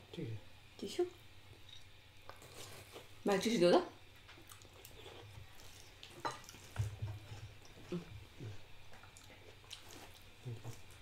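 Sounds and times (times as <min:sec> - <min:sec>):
wet chewing: 0:04.4 - 0:11.0.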